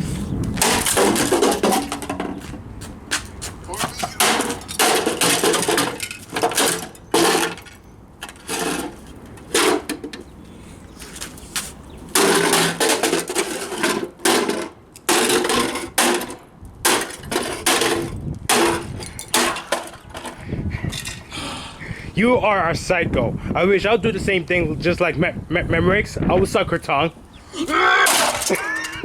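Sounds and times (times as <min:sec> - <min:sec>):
hammer smashing loudspeaker: 0:28.0 - 0:28.6.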